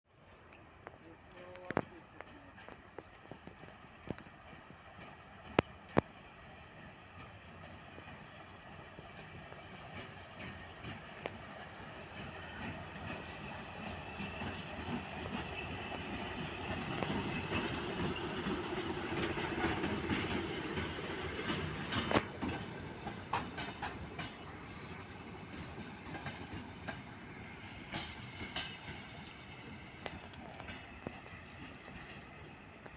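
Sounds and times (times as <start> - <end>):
wheels clicking over rail joints: 9.1 - 32.9
locomotive engine running: 16.0 - 30.6.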